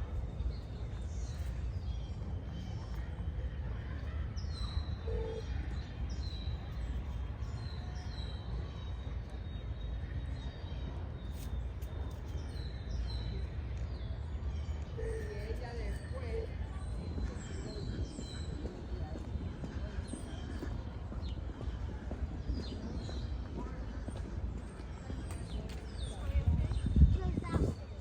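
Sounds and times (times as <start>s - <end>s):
low rumble of city background: 0.0s - 28.0s.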